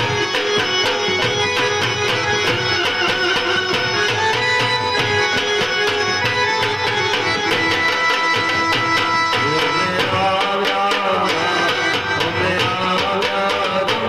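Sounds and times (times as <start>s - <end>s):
electronic keyboard melody: 0.0s - 10.1s
fast drumming: 0.0s - 14.0s.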